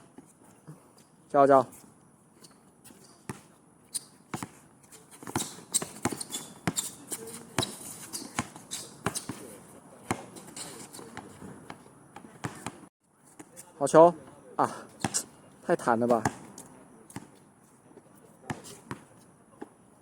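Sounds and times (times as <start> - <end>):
basketball bouncing on hard court: 4.3 - 9.4, 11.1 - 12.8, 16.1 - 16.5, 18.5 - 19.7.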